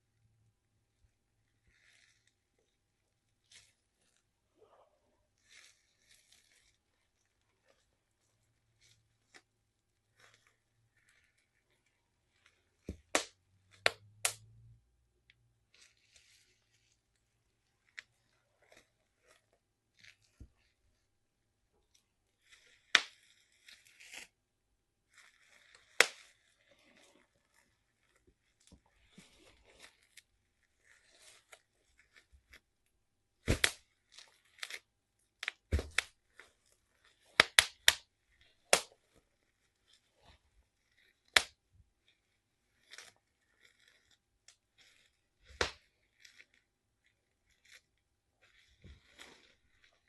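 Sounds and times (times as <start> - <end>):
bubble wrap popping: 5.3 - 17.2, 22.3 - 24.4, 25.0 - 50.0
plastic crackling underfoot: 33.4 - 41.6, 48.4 - 50.0.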